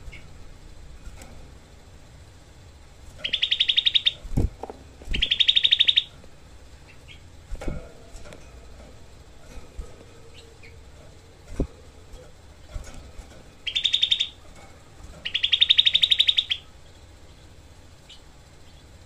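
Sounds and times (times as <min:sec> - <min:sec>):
bulbul rapid trilling song: 0:03.1 - 0:04.4, 0:05.0 - 0:07.4, 0:10.0 - 0:19.0.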